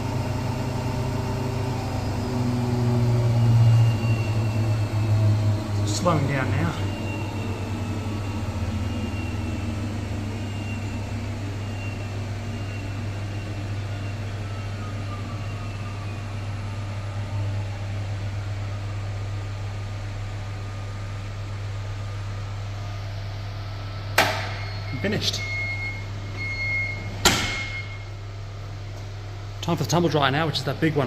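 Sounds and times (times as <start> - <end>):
washing machine drum whine: 0.0 - 31.0.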